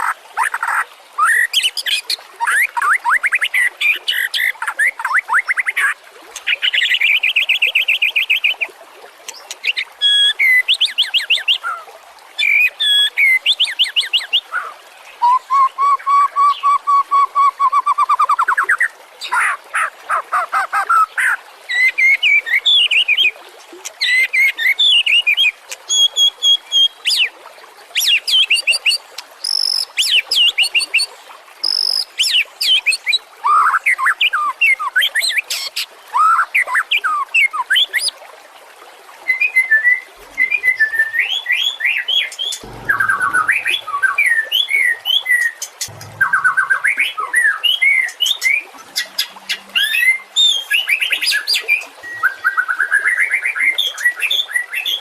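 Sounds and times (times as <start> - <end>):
bird singing whistles and trills: 15.2 - 18.6.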